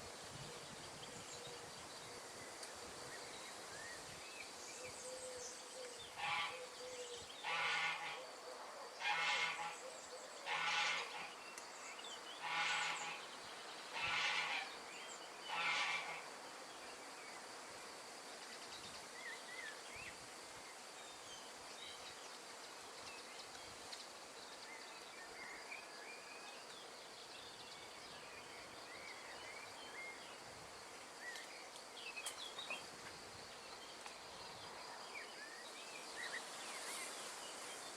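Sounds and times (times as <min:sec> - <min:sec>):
wind hiss: 0:00.0 - 0:08.4, 0:27.1 - 0:37.9
animal call: 0:09.0 - 0:11.3, 0:12.4 - 0:13.3, 0:13.9 - 0:14.8, 0:15.5 - 0:16.2.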